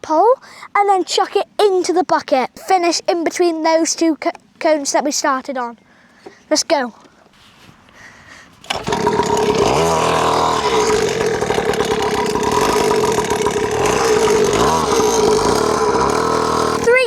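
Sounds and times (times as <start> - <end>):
engine throttle blips: 8.5 - 17.0
dirt bike engine idling: 8.6 - 17.0.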